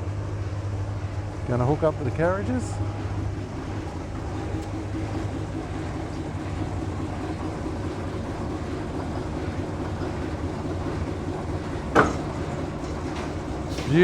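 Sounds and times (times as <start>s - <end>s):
locomotive idling hum: 0.0s - 14.0s.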